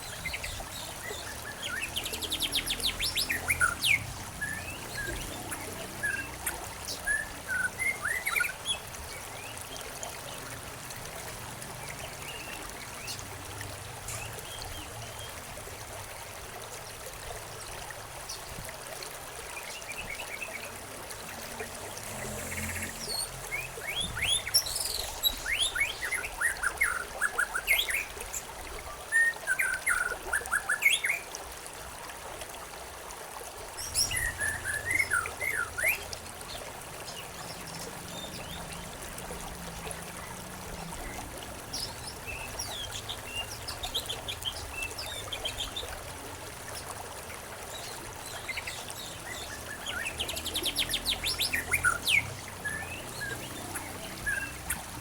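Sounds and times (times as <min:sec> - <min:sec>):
birds chirping and singing: 0:33.8 - 0:36.0.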